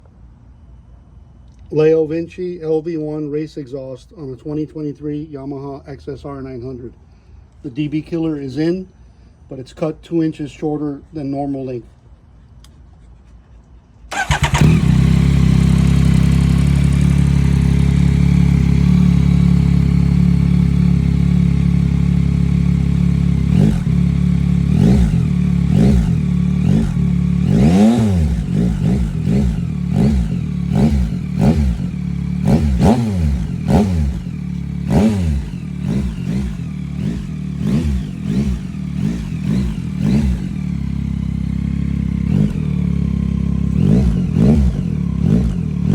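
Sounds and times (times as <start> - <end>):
motorcycle engine idling: 14.1 - 45.9
motorcycle engine revving: 14.1 - 45.9.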